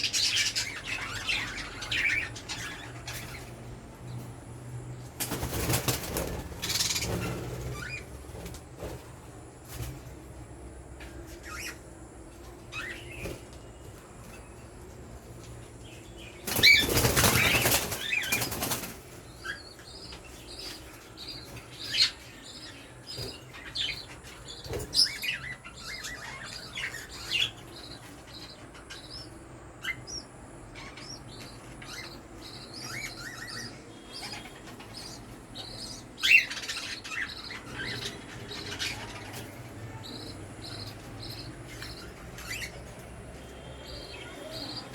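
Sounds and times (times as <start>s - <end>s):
budgies chirping: 0.0s - 9.1s, 11.2s - 44.9s
wings flapping: 5.2s - 7.8s, 16.5s - 19.0s.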